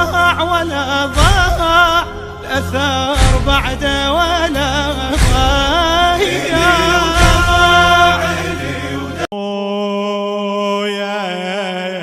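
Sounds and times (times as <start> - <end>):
musical backing: 0.0 - 9.3
man chanting a lament: 0.0 - 12.0.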